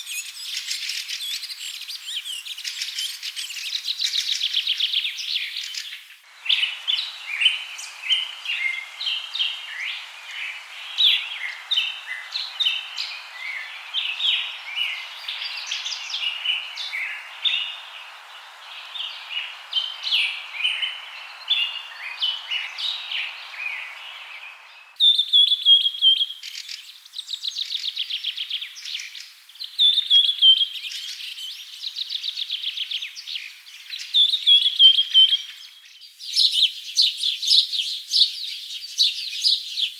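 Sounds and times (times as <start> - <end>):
birds chirping and calling: 0.0 - 26.8
steady hiss: 2.6 - 25.0.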